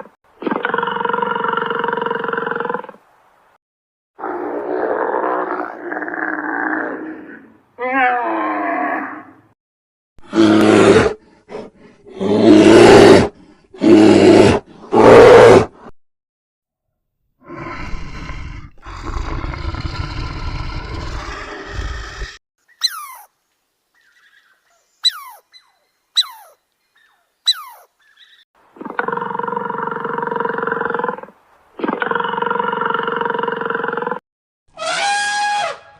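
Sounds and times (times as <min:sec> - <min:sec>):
animal calls: 0:21.1 - 0:23.3, 0:25.0 - 0:29.2.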